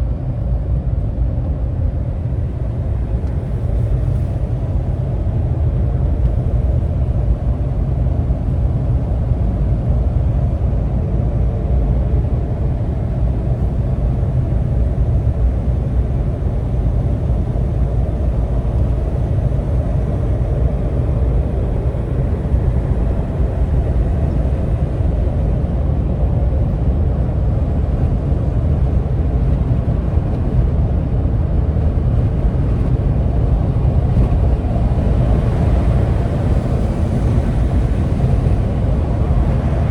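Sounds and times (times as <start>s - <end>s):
vehicle engine and road rumble: 0.0s - 39.9s.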